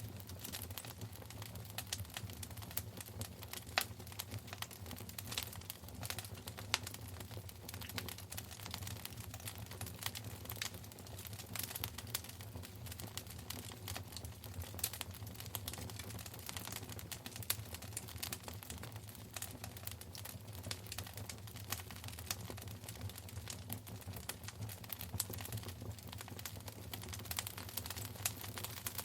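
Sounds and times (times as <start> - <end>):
fire crackling and popping: 0.0 - 29.0.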